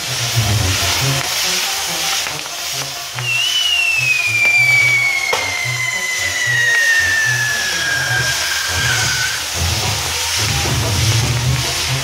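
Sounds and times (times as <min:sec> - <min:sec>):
hiss of spraying sparks: 0:00.0 - 0:12.0
sharp firework pops: 0:00.5 - 0:12.0
firework whistle falling in pitch: 0:03.1 - 0:10.1.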